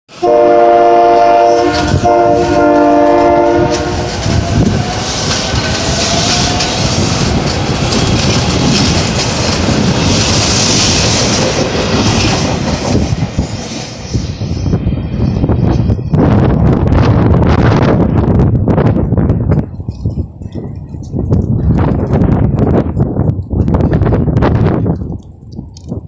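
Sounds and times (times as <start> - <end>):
train horn chord: 0.1 - 4.3
train rumbling and clattering: 0.1 - 26.0.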